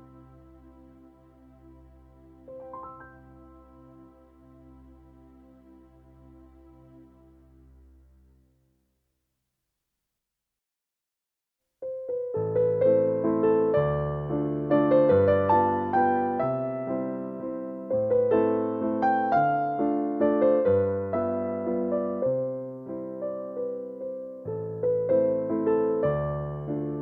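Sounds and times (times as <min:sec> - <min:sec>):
gentle solo piano piece: 0:02.5 - 0:04.2, 0:11.8 - 0:27.0.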